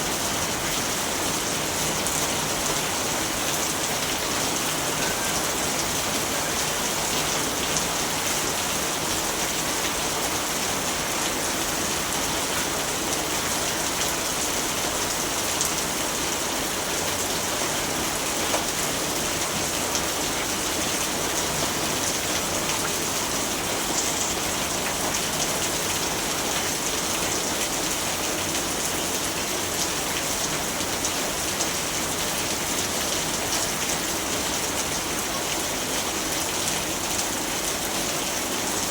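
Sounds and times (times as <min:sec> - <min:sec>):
rain pattering: 0:00.1 - 0:38.9.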